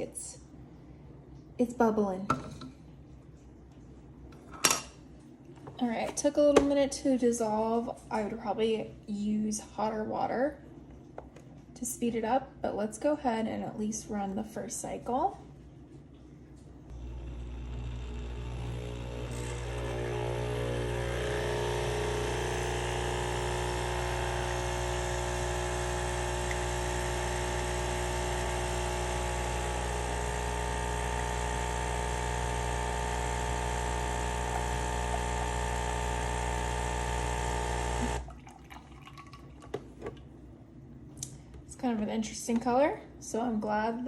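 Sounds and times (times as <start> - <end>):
espresso machine pump humming: 16.9 - 38.3.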